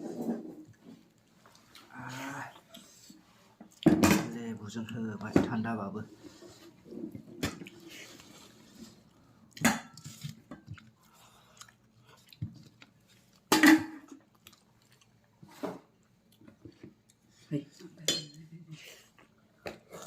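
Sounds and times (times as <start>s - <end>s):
person chewing wetly: 7.6s - 13.5s, 14.1s - 15.4s.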